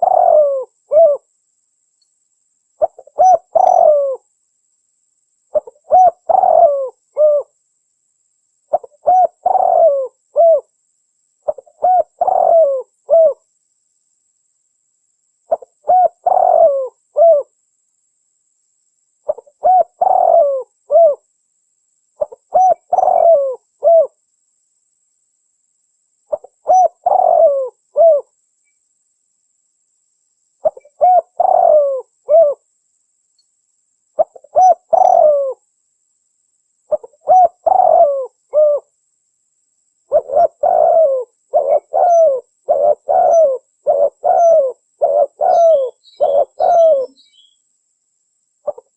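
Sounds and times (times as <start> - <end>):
dove cooing: 0.0 - 1.3, 2.8 - 4.2, 5.5 - 7.6, 8.7 - 10.7, 11.4 - 13.4, 15.5 - 17.5, 19.3 - 21.2, 22.2 - 24.2, 26.3 - 28.3, 30.6 - 32.6, 34.2 - 35.6, 36.9 - 38.9, 40.1 - 47.5, 48.6 - 48.9.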